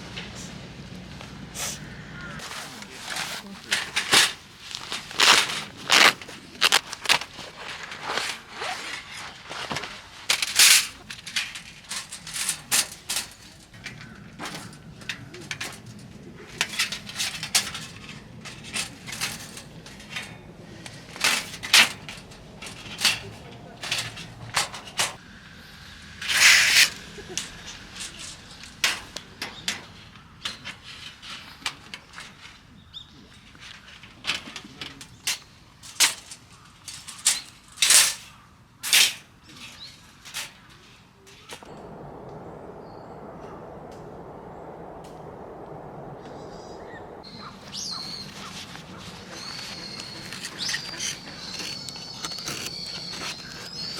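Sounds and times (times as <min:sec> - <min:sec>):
firewood crackling and popping: 0:02.4 - 0:25.2, 0:41.4 - 0:53.9.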